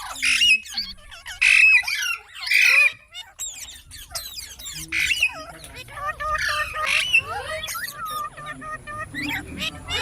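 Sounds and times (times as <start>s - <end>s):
parrot chirps and whistles: 0.0s - 5.4s
parrot squawking: 0.0s - 10.0s.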